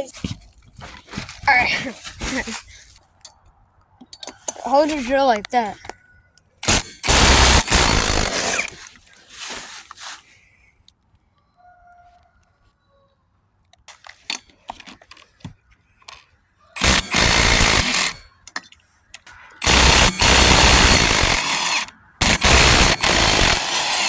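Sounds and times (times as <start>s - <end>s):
impact wrench hammering: 6.6s - 8.7s, 16.8s - 18.2s, 19.6s - 24.0s.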